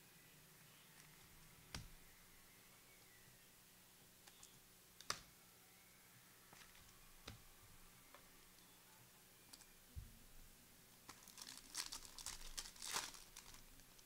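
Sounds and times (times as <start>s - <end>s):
packaging crinkling and rustling: 11.1s - 14.0s.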